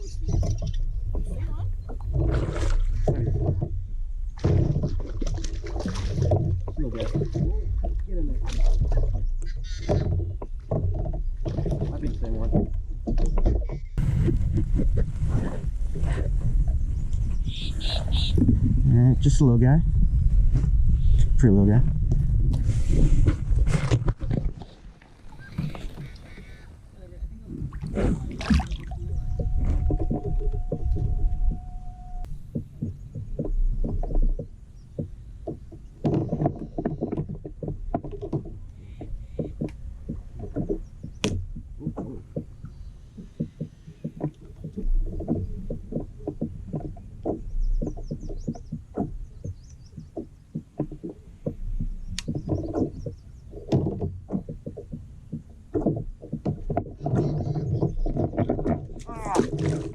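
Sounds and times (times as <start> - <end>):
gear knocking on plastic hull: 0.2 - 15.1, 28.4 - 59.9
faint steady tone: 28.9 - 32.7.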